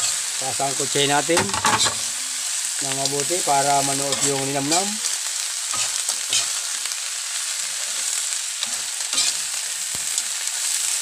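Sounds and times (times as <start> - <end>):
crawfish sizzling in a wok: 0.0 - 11.0
metal spatula scraping a pan: 1.3 - 2.2, 3.8 - 6.8, 7.8 - 9.6.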